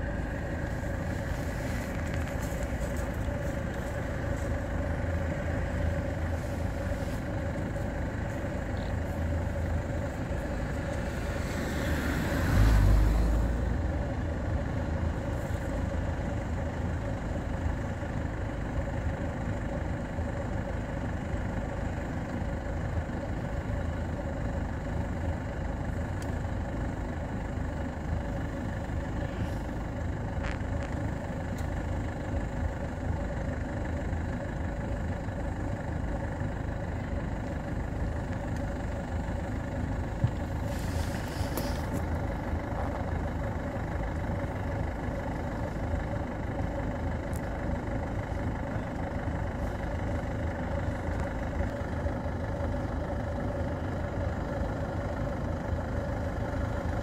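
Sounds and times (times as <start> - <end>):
car engine idling: 0.0 - 57.0
car passing by: 11.0 - 13.7.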